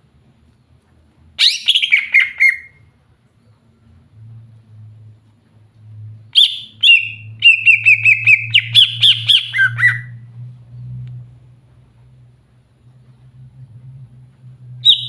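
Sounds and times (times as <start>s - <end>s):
bird singing: 1.4s - 2.8s, 6.4s - 10.2s
downward-sliding bird calls: 6.4s - 10.2s.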